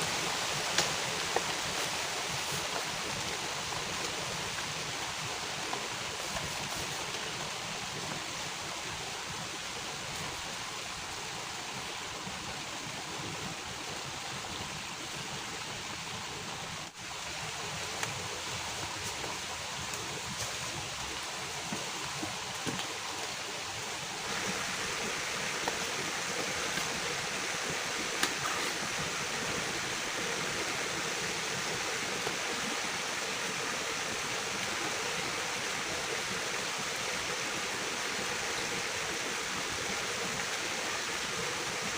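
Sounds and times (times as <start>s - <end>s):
heavy rain falling: 16.9s - 41.9s.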